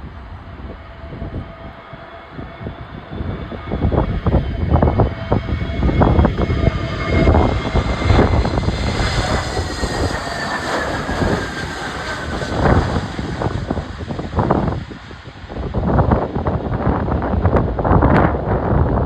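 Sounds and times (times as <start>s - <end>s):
jet engines whining: 0.0s - 17.3s
wind buffeting microphone: 0.0s - 19.0s.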